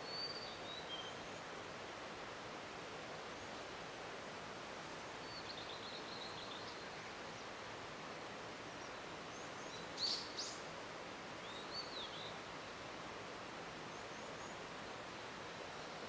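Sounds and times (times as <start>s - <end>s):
bird singing: 0.0s - 1.2s, 8.8s - 10.6s
background hiss: 0.0s - 16.0s.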